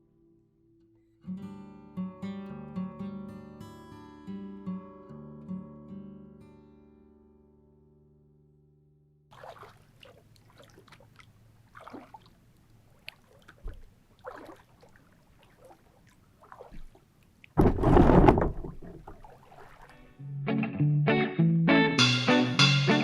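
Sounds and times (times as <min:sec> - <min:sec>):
water splashes and drips: 0:09.3 - 0:17.6, 0:18.2 - 0:20.1.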